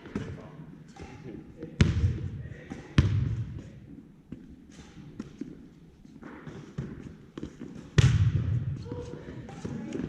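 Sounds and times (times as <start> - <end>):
volleyball smacked hard: 8.0 - 8.7.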